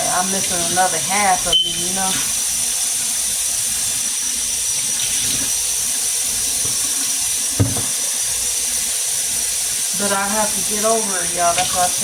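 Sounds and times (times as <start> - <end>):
faucet water running into sink: 0.0 - 12.0
short knock: 7.6 - 7.9.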